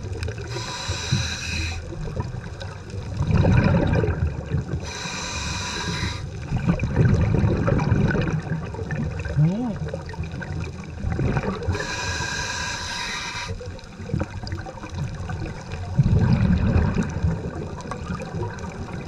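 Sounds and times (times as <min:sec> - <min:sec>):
bubbling exhaled air: 0:00.0 - 0:19.0
regulator hissing inhalations: 0:00.4 - 0:01.8, 0:04.8 - 0:06.3, 0:11.8 - 0:13.6.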